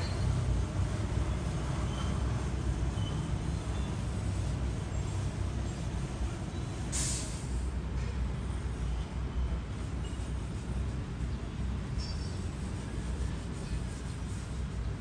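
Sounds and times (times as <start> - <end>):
short sharp hiss: 6.9 - 7.7.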